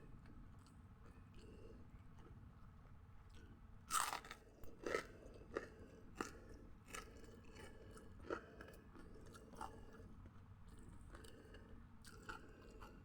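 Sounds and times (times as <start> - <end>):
person chewing crunchy food: 3.9 - 10.1, 10.7 - 13.0.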